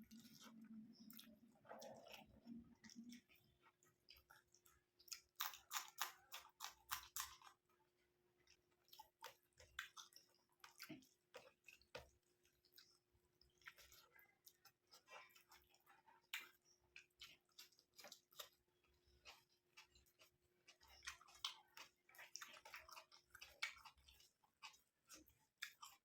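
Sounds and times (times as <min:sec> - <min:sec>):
mouth chewing food: 0:00.0 - 0:26.0.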